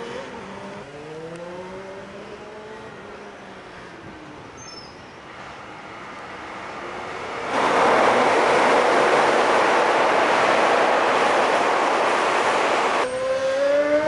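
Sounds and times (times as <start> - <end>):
train crossing steel bridge: 5.1 - 14.0.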